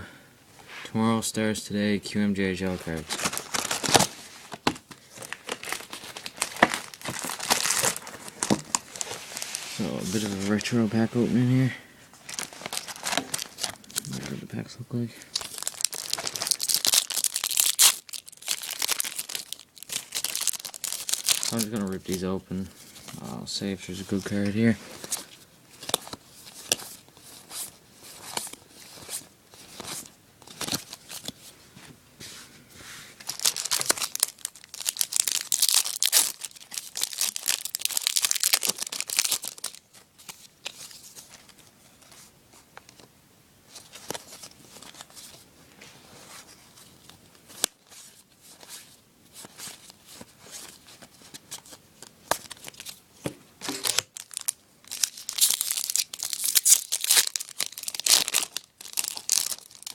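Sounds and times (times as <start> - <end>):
card packs tearing and crinkling: 2.8 - 11.2, 12.3 - 14.4, 15.3 - 22.3, 33.2 - 41.6, 49.3 - 53.0, 53.6 - 59.9.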